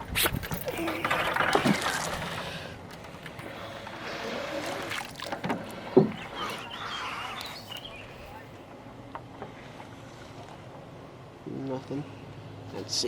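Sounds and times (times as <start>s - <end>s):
water splashing and dripping: 0.0s - 7.9s.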